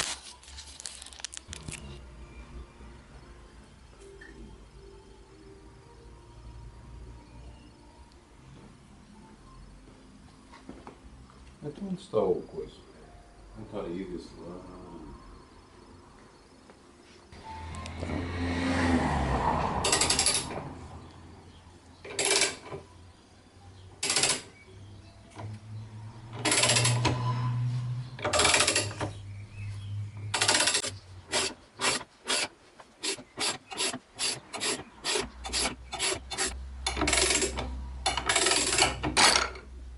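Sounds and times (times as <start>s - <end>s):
ratchet wrench clicking: 19.9s - 20.5s, 24.0s - 24.5s, 26.4s - 27.1s, 28.3s - 29.0s, 30.3s - 39.0s.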